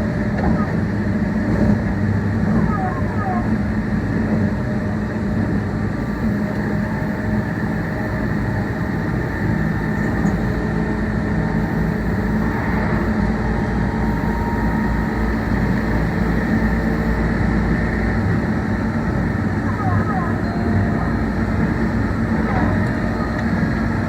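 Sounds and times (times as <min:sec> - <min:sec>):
wheels rumbling on rail: 0:00.0 - 0:24.0
low steady tones: 0:05.9 - 0:24.0.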